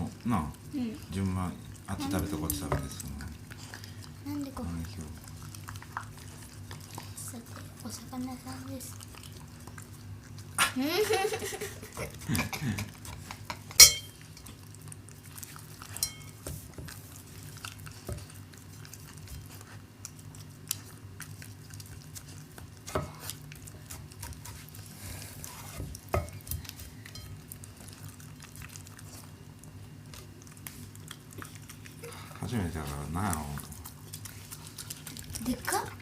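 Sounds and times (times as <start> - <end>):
dog eating from a bowl: 0.0 - 10.6, 11.9 - 36.0
low steady hum: 0.0 - 36.0.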